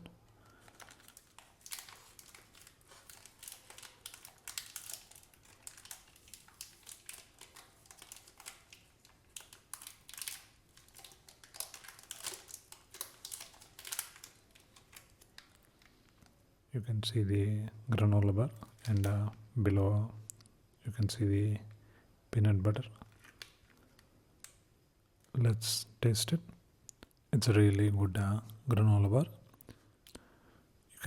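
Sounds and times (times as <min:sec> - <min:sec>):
wrapper crinkling: 0:00.4 - 0:16.2, 0:23.1 - 0:24.6.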